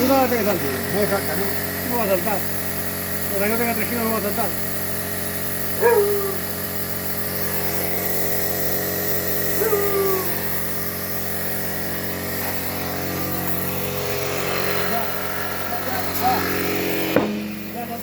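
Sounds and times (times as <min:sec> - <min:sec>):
air compressor running: 0:00.0 - 0:18.0
sliding vocal calls: 0:05.8 - 0:06.5, 0:09.6 - 0:10.5.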